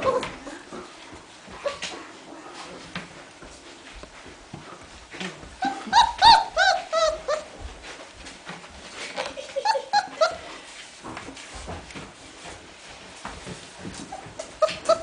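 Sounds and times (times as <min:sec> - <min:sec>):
puppies yelping: 0:05.6 - 0:07.6, 0:09.6 - 0:10.5, 0:14.1 - 0:15.0.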